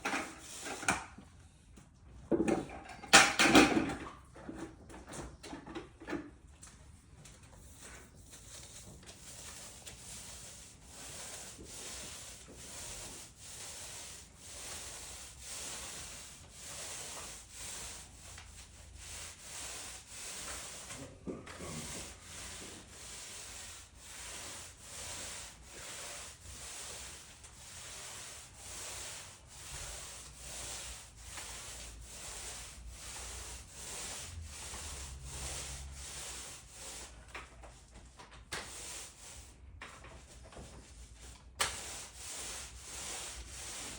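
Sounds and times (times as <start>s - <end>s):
hand tool rubbing on concrete: 7.6s - 37.2s, 41.6s - 43.9s.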